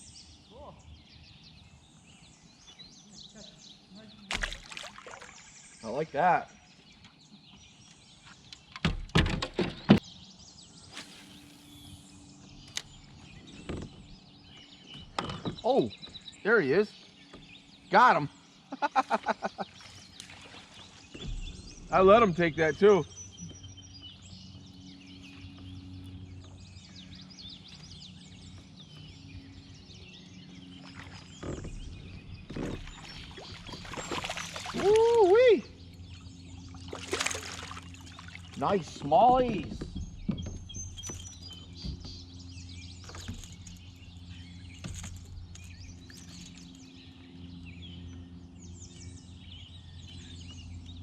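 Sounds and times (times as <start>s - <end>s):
songbirds chirping and singing: 0.0s - 51.0s
water splashes: 4.3s - 5.8s, 32.6s - 35.5s, 36.6s - 39.8s
creek flowing: 32.5s - 39.1s
sharp knocks and thumps: 39.3s - 42.3s.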